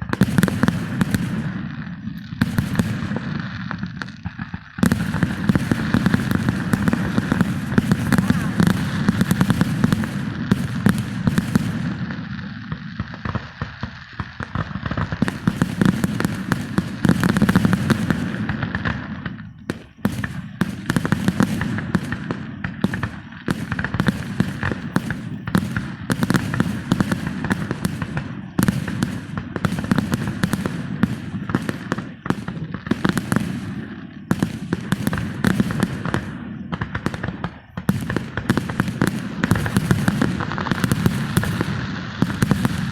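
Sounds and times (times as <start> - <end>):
fireworks crackling and banging: 0.0 - 42.9.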